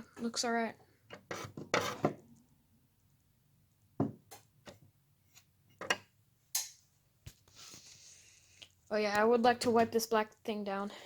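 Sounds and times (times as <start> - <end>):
objects knocking on hard surface: 4.0 - 4.3.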